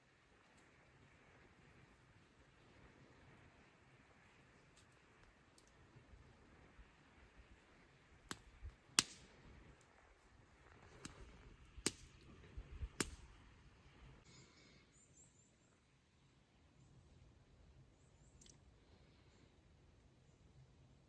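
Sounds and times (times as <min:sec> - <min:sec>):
sharp clicks or snaps: 0:08.3 - 0:09.3, 0:13.0 - 0:13.2.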